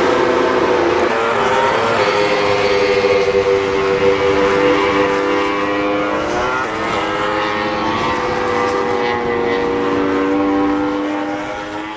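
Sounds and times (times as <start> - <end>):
racing motorcycle engines: 0.0 - 11.9.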